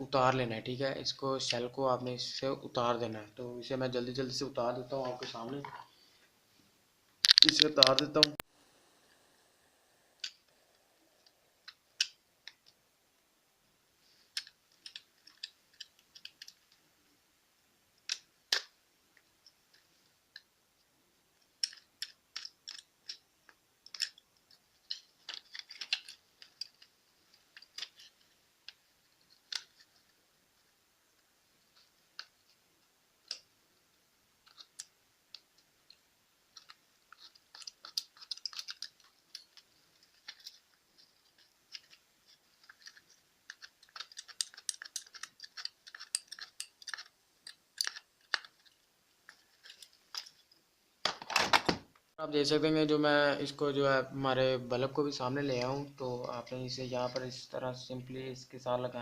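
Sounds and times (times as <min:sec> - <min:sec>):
small clicks on plastic parts: 0:07.2 - 0:08.4, 0:11.2 - 0:12.8, 0:14.3 - 0:16.8, 0:18.0 - 0:20.5, 0:21.4 - 0:30.2, 0:31.7 - 0:32.6, 0:33.2 - 0:33.6, 0:34.4 - 0:51.8.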